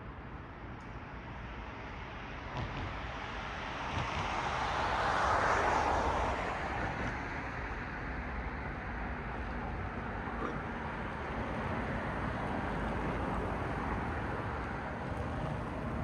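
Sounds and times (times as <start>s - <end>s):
low traffic rumble: 9.6s - 16.0s
car passing: 10.5s - 16.0s.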